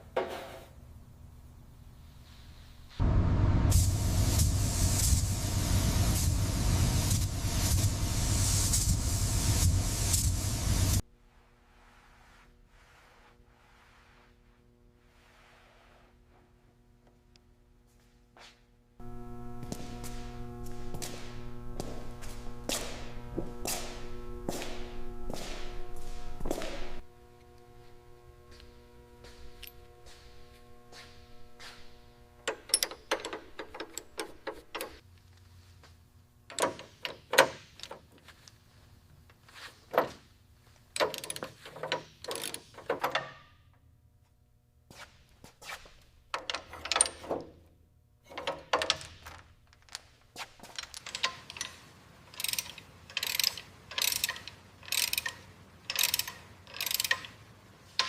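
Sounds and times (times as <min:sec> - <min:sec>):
clicking and scraping on car parts: 0:32.5 - 0:35.0, 0:39.2 - 0:43.5.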